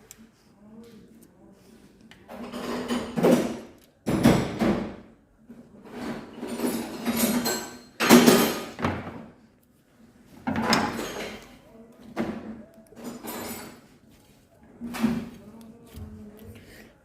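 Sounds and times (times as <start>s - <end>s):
metal parts clanking and scraping: 5.9s - 8.8s.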